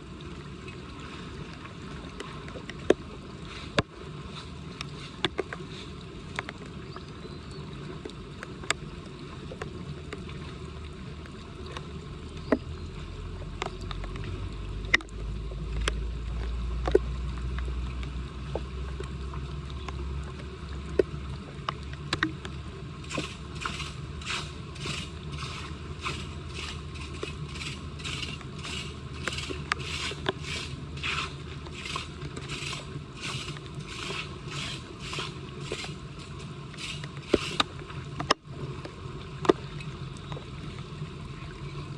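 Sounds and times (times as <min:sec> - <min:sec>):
low rumble: 0:12.0 - 0:38.2
tool scraping: 0:23.1 - 0:37.7.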